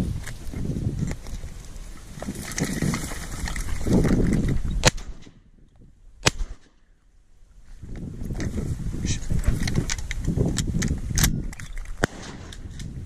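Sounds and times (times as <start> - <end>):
wind buffeting microphone: 0.0 - 6.6, 7.6 - 13.0
shotgun shots: 4.8 - 5.4, 6.2 - 6.8, 12.0 - 12.7.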